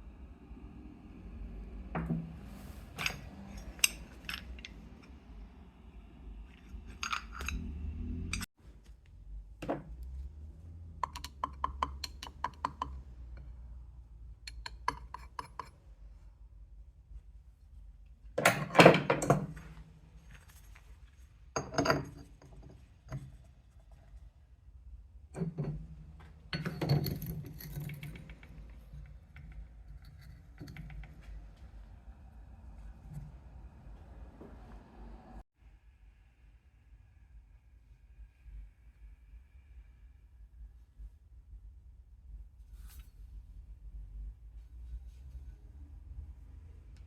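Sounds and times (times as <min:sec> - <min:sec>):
metal parts clinking and rattling: 0:02.9 - 0:05.2, 0:06.5 - 0:08.5, 0:25.4 - 0:31.6
tools clattering on workbench: 0:25.4 - 0:31.4.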